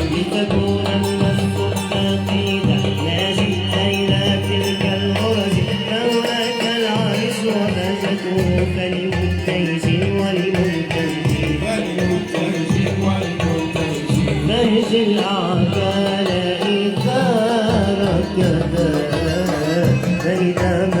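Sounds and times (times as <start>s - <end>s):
wavering melody: 0.0s - 10.0s
hand drums: 0.0s - 21.0s.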